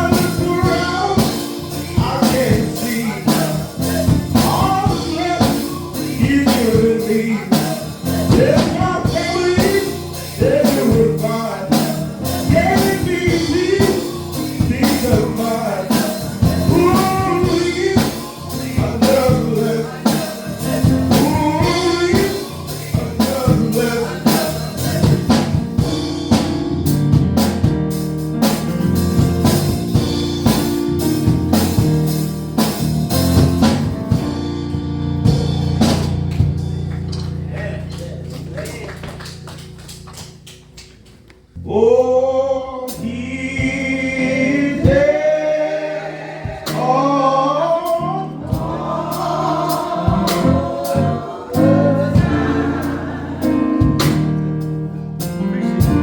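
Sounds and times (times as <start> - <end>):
drum kit beat: 0.0 - 41.3, 42.9 - 56.0
bass and guitar chords: 0.0 - 56.0
gospel band playing: 0.0 - 56.0.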